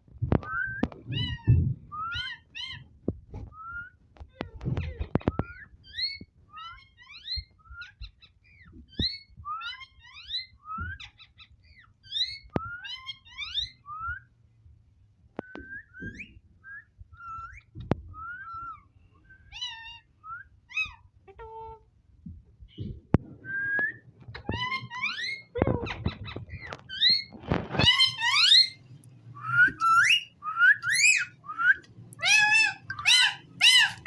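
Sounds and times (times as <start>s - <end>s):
parrot chattering and whistling: 24.4s - 28.8s, 29.4s - 34.0s.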